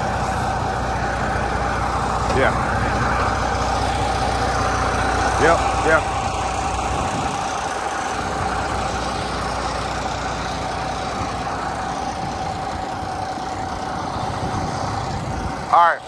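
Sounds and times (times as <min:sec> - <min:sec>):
constant thin whine: 0:00.0 - 0:16.0
diesel engine idling: 0:00.0 - 0:16.0.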